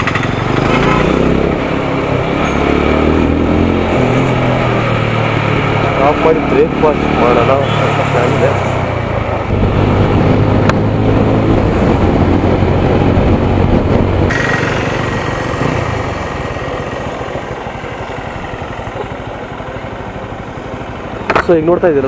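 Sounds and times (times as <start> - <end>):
motorcycle engine: 0.0 - 22.0
wind rush over microphone: 8.9 - 18.6.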